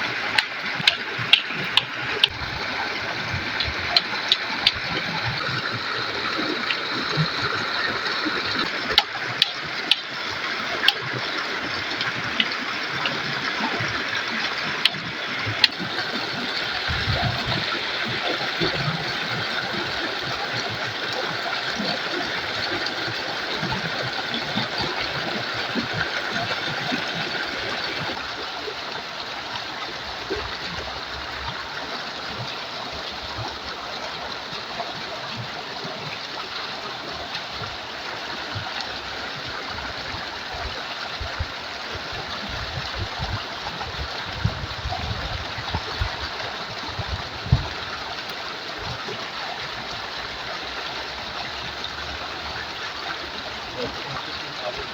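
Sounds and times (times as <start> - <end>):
water rushing over rocks: 0.0 - 54.9
low knocks and thumps: 40.5 - 48.0.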